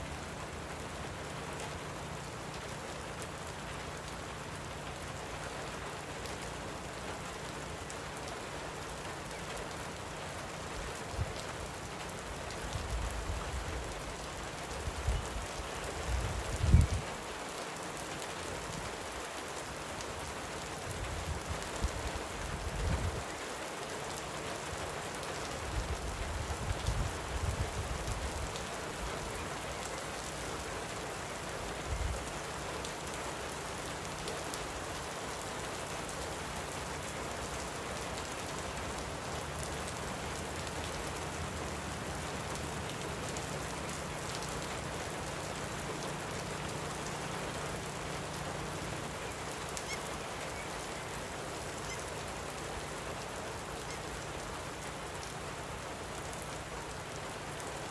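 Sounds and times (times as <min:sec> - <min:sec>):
light rain falling: 0:00.0 - 0:57.9.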